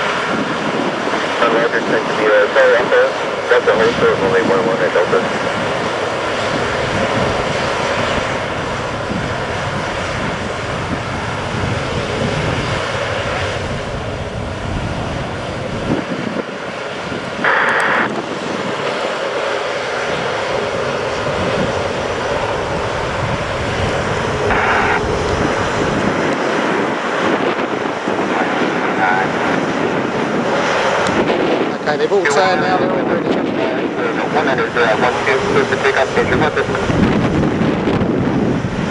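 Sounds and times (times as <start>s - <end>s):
aircraft engines running: 0.0s - 38.9s.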